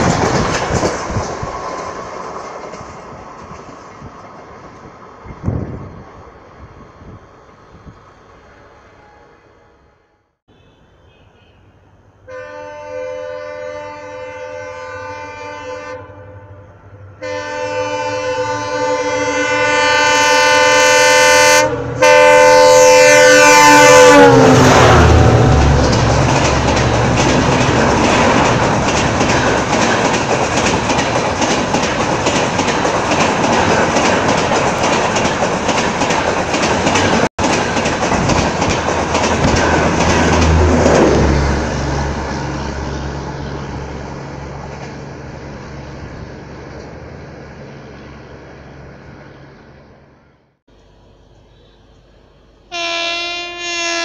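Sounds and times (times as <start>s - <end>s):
train coaches rumbling and clattering: 0.0s - 9.6s, 16.6s - 50.3s
train horn blasts: 12.2s - 25.6s, 52.7s - 54.0s.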